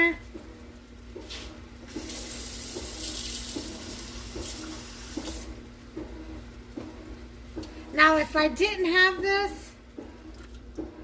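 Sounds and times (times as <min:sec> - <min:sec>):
tap water running: 0:01.9 - 0:05.5.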